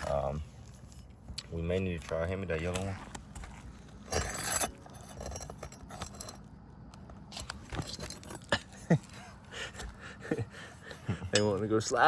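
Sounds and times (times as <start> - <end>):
pry tool scraping shingles: 4.0 - 6.5.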